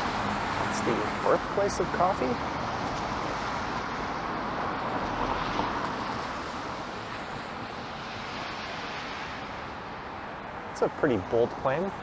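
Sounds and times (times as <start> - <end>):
car tyres hissing on wet road: 0.0 - 11.9.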